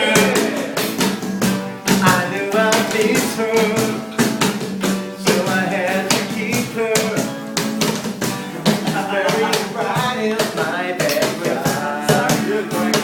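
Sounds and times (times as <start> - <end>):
person singing: 0.0 - 1.1, 1.9 - 4.2, 5.2 - 7.4, 8.6 - 13.0
bass line: 0.0 - 4.1
drums: 0.0 - 13.0.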